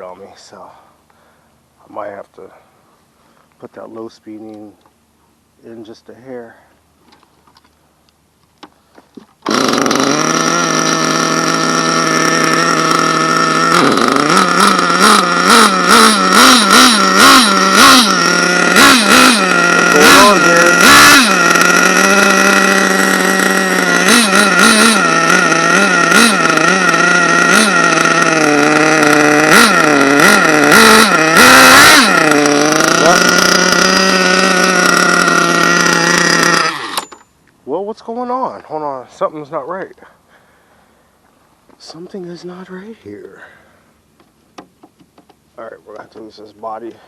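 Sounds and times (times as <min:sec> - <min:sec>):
small engine revving: 0:09.2 - 0:37.2.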